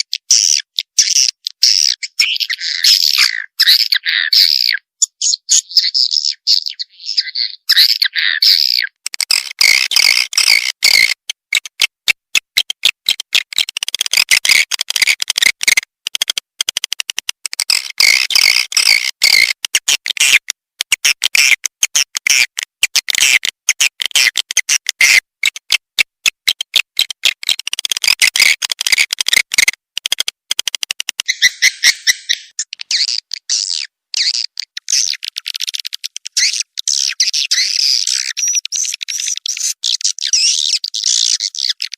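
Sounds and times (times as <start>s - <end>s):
swiftlets twittering: 31.0s - 33.1s.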